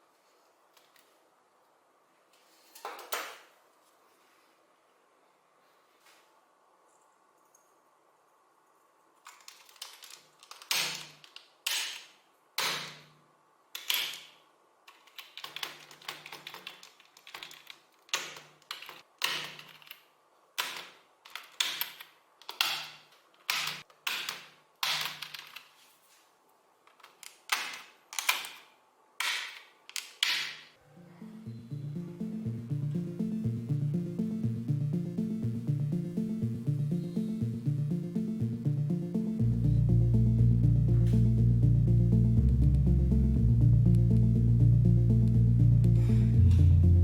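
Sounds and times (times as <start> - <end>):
mechanical keyboard keystrokes: 9.3 - 12.0, 14.9 - 20.0, 20.6 - 25.6.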